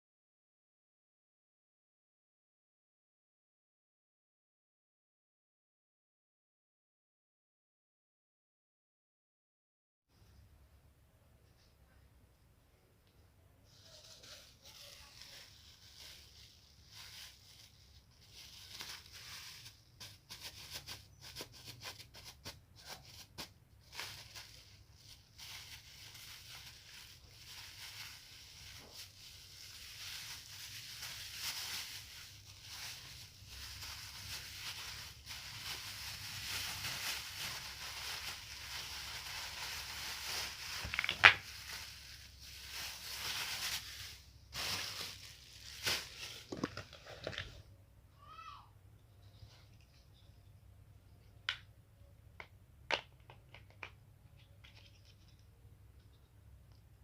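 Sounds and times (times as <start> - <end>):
packaging rustling and crinkling: 13.9 - 47.6.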